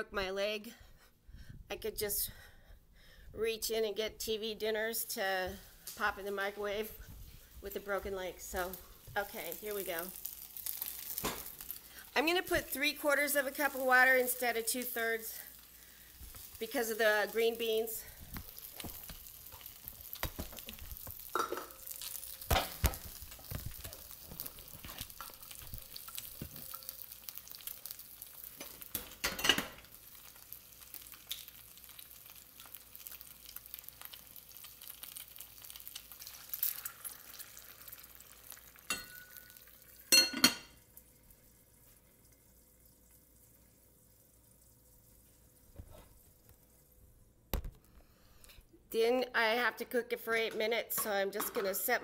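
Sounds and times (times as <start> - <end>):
food sizzling in oiled skillet: 5.5 - 47.0
water pouring into pan: 18.2 - 40.2.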